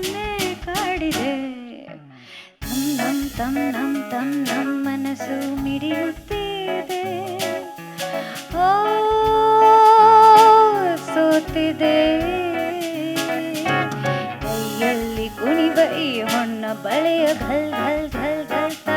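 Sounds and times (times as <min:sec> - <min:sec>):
jazz band playing: 0:00.0 - 0:01.5, 0:02.6 - 0:18.9
woman singing with vibrato: 0:00.0 - 0:18.9.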